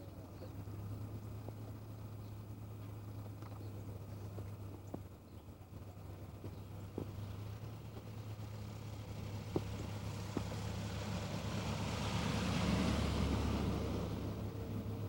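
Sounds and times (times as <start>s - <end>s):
vehicle passing by: 5.8s - 15.0s.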